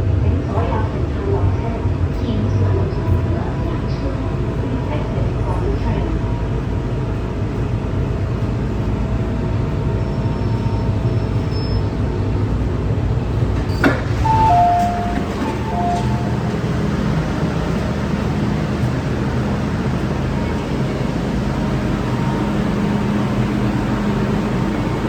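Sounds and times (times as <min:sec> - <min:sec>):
train rumbling: 0:00.0 - 0:25.0
short high-pitched tones: 0:14.3 - 0:16.5.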